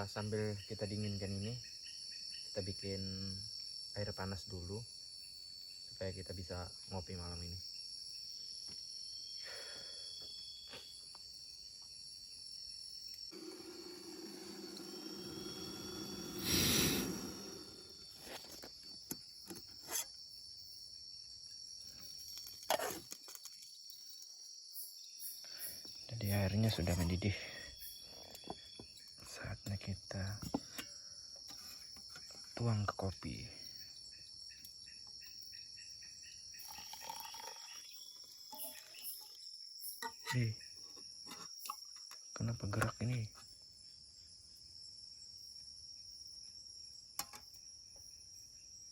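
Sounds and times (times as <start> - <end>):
insects chirping: 0.0 - 48.9
high-pitched insect drone: 12.2 - 19.2, 33.3 - 40.7.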